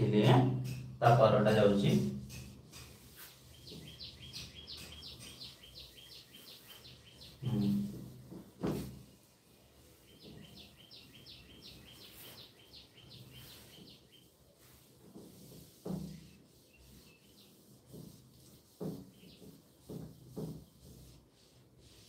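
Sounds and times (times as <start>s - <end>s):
sharp knock: 0.2s - 1.2s
small bird chirping: 3.1s - 7.9s, 9.8s - 14.4s.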